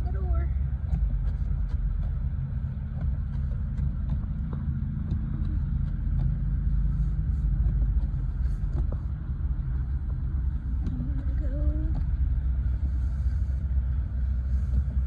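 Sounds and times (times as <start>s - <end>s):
snowblower engine rumbling: 0.0s - 15.0s.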